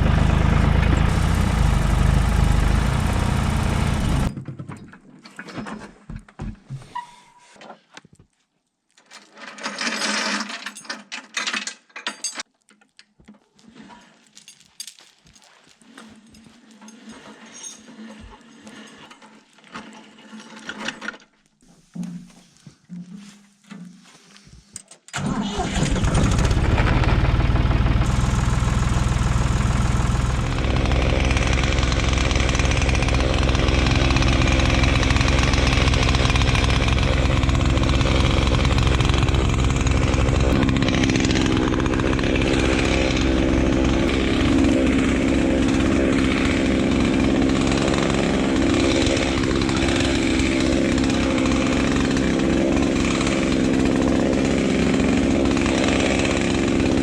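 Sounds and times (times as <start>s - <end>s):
engine running with firing pulses: 0.0s - 4.4s, 25.6s - 45.7s.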